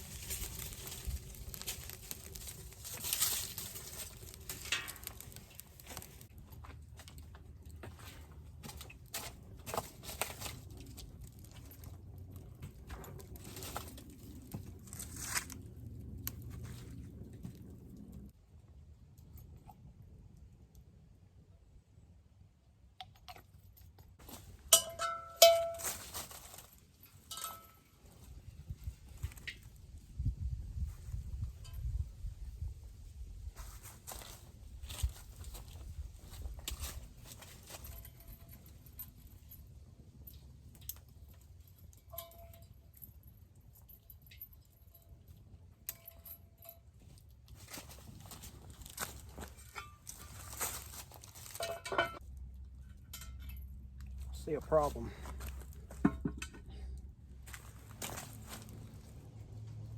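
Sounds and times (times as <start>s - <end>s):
metal objects clinking: 24.3s - 28.0s, 40.8s - 47.0s, 49.3s - 52.2s, 52.9s - 53.9s.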